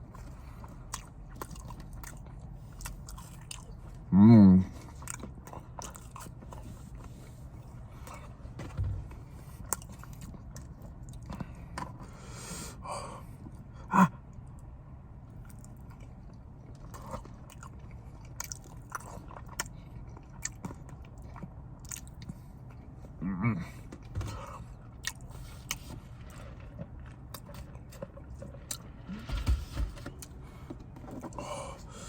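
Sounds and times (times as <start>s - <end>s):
person chewing food: 0.0s - 4.1s, 4.7s - 12.4s, 13.2s - 23.2s, 23.8s - 29.3s.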